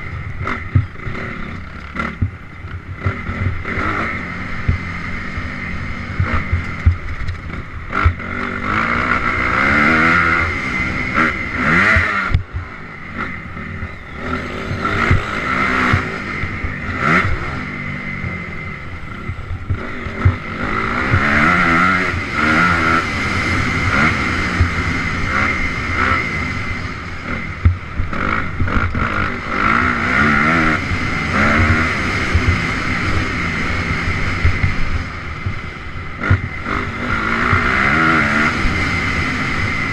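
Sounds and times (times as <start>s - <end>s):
dirt bike engine revving: 0.0s - 39.9s
knocks and clatter: 6.2s - 8.2s.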